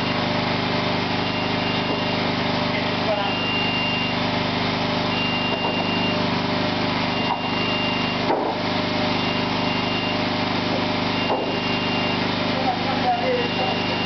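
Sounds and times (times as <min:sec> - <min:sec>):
tracked machine engine running: 0:00.0 - 0:14.0
electronic warning beeper: 0:01.2 - 0:02.3, 0:03.0 - 0:04.2, 0:05.1 - 0:06.2, 0:07.0 - 0:08.3, 0:09.1 - 0:10.3, 0:11.0 - 0:14.0.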